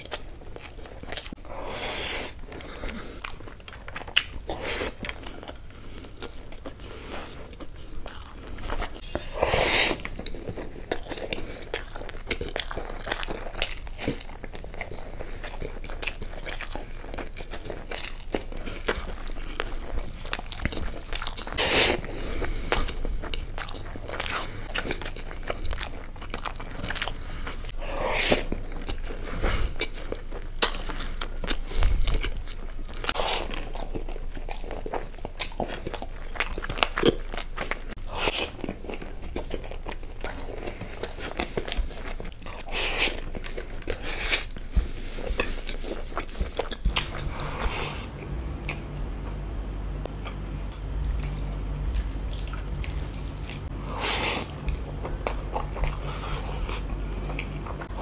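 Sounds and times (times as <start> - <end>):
man chewing food: 0.0 - 58.0.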